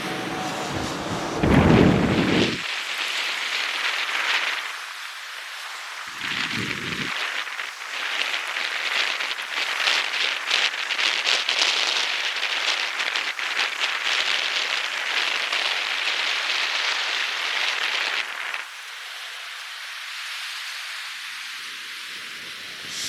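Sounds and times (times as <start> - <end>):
strong snowstorm wind: 0.0 - 19.4, 20.3 - 23.0
blowing snow crackling: 0.0 - 23.0.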